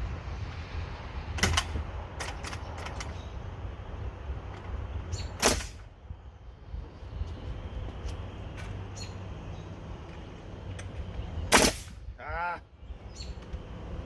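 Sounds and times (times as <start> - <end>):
steady low rumble: 0.0 - 14.0
nail gun firing: 5.4 - 5.8, 11.5 - 11.9.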